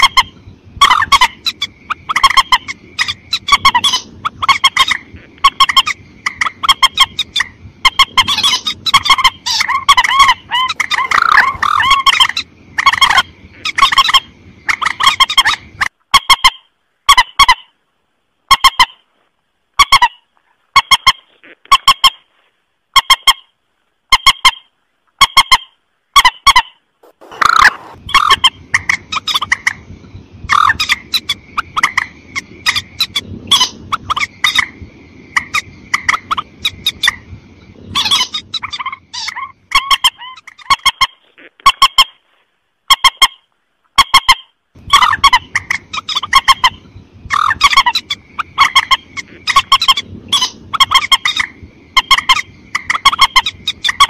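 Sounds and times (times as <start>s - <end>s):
harsh honking bird calls: 7.9s - 14.3s, 26.5s - 29.4s.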